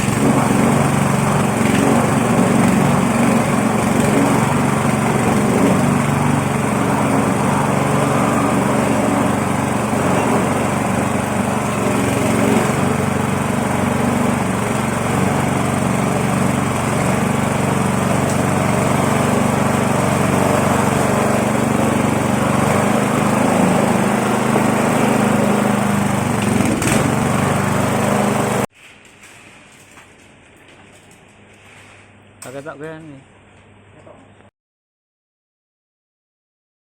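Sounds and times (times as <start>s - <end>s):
machine droning: 0.0s - 28.7s.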